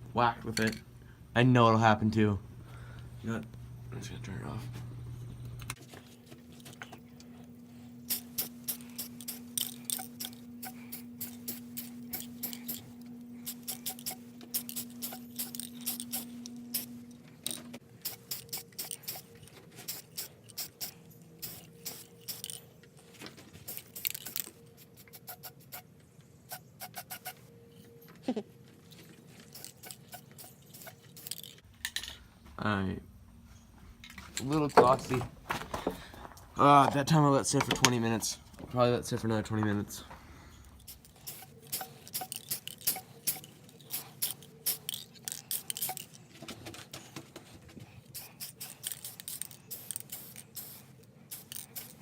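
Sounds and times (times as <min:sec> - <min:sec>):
fan humming: 0:00.0 - 0:52.0
spray paint hissing: 0:08.0 - 0:17.0, 0:18.0 - 0:22.7, 0:23.6 - 0:25.9, 0:26.5 - 0:27.5, 0:29.4 - 0:31.6, 0:40.8 - 0:46.2, 0:48.1 - 0:52.0
spray can mixing ball rattling: 0:08.1 - 0:17.0, 0:18.0 - 0:22.6, 0:23.6 - 0:25.9, 0:26.5 - 0:27.4, 0:29.4 - 0:31.6, 0:40.8 - 0:46.3, 0:48.1 - 0:52.0.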